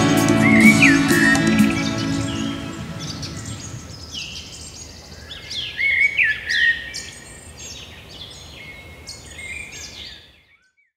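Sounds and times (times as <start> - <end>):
birds chirping and singing: 0.0 - 7.1.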